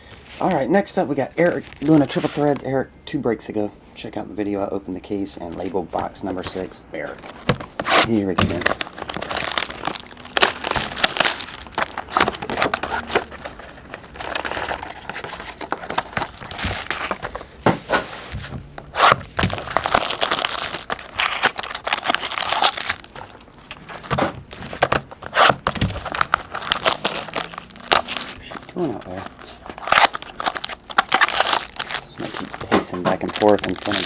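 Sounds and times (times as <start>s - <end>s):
wrapping tearing and crinkling: 1.5s - 2.5s, 7.2s - 17.5s, 18.8s - 34.0s.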